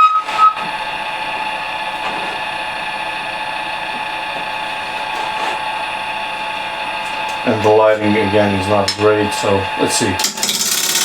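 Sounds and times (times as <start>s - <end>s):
wood lathe motor whining: 0.0s - 11.0s.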